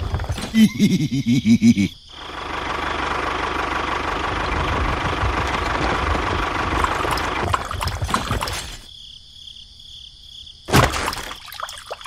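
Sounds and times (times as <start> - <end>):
engine idling: 2.1 - 8.8.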